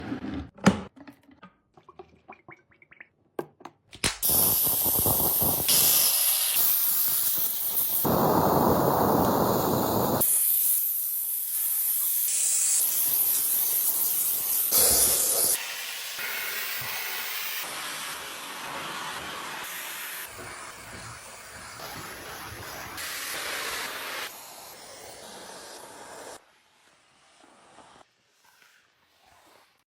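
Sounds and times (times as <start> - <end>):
steam cleaner hissing: 4.2 - 26.4.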